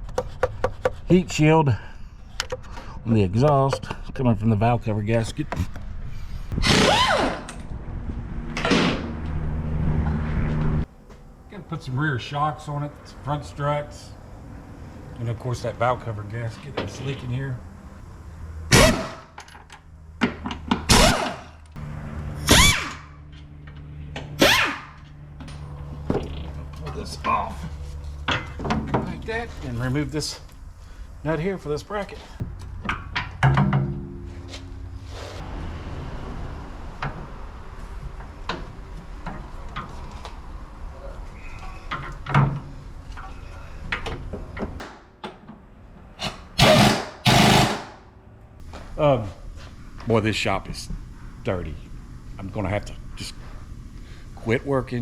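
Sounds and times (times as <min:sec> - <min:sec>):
steady low hum: 0:07.6 - 0:55.0
air tool bursts: 0:18.7 - 0:19.2, 0:20.9 - 0:21.5, 0:46.2 - 0:48.0
power tool spinning up and down: 0:46.6 - 0:47.9.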